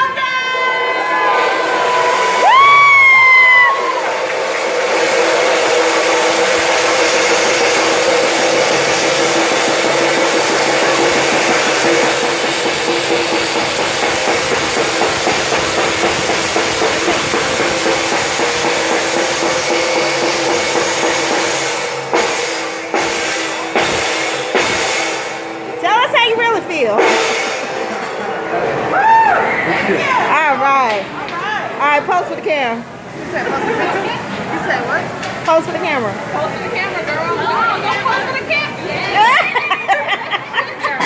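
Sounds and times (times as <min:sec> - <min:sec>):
fast drumming with cymbal crashes: 0:00.6 - 0:28.2.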